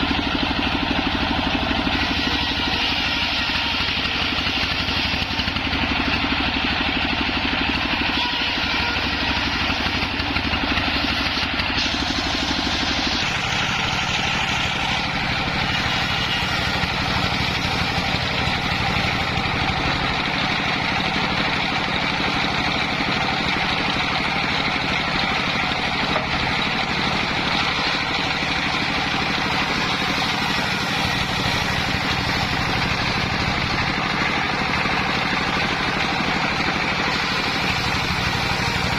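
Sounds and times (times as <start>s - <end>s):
circular saw droning: 0.0s - 38.9s.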